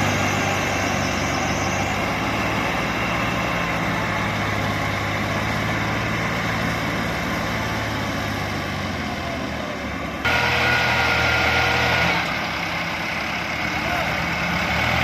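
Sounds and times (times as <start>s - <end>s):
tractor diesel engine running: 0.0s - 15.0s
high whine: 10.3s - 12.4s.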